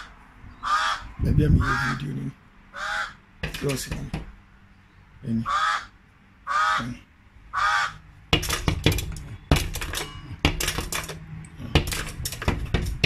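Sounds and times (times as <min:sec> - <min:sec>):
hard objects clattering: 0:03.4 - 0:04.3, 0:08.3 - 0:13.0.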